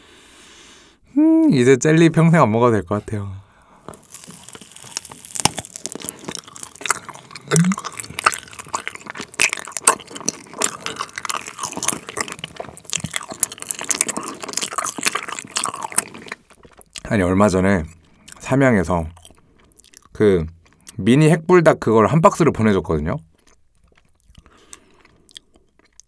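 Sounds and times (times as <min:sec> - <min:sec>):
chewing gummy candy: 0:03.9 - 0:21.1, 0:23.2 - 0:26.0
sticky crackly mouth clicks: 0:04.0 - 0:17.1, 0:23.3 - 0:26.0.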